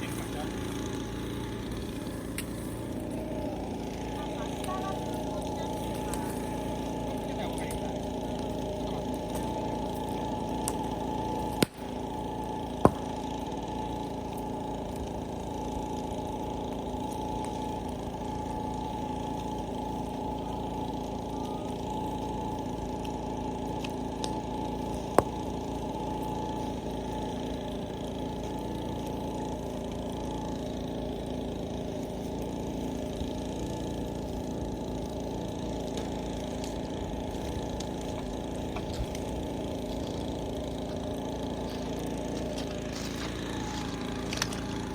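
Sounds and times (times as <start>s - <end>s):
mechanical hum: 0.0s - 44.9s
sharp pops: 10.5s - 13.3s.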